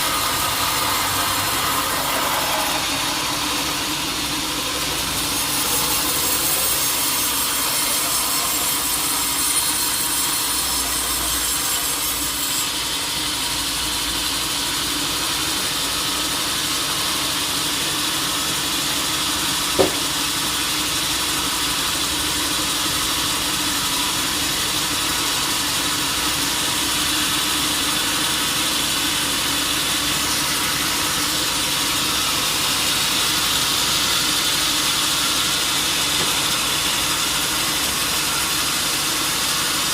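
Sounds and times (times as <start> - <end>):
sawmill saw cutting log: 0.0 - 39.9
sharp knock: 19.8 - 20.2.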